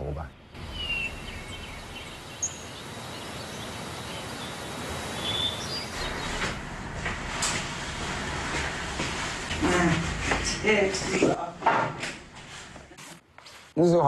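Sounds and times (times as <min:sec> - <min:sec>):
background hiss: 0:00.0 - 0:14.0
high bird chirps: 0:00.4 - 0:06.6.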